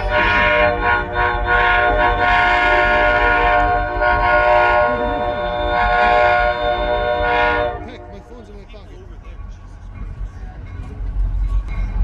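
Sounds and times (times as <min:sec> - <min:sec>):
train horn: 0:00.0 - 0:08.5
locomotive bell ringing: 0:00.0 - 0:12.0.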